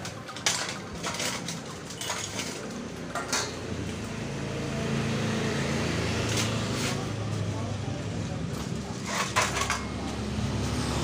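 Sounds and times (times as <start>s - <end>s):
metal tools clinking on concrete: 0.0s - 4.1s, 6.2s - 7.5s, 8.5s - 10.8s.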